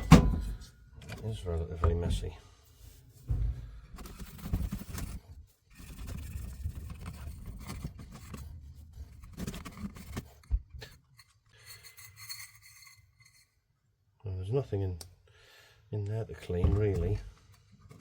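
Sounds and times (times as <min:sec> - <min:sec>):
scraping and rubbing metal part: 0:01.8 - 0:13.6.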